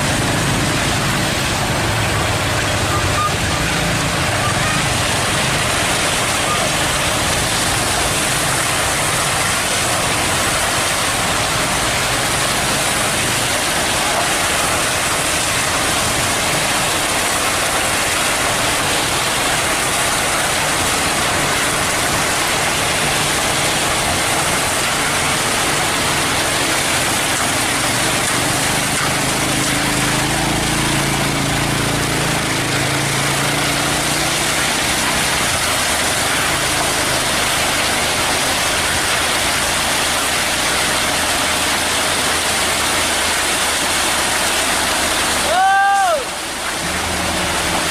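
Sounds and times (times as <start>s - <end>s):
diesel engine running: 0.0s - 45.7s, 46.3s - 47.9s
continuous rushing noise: 0.0s - 47.9s.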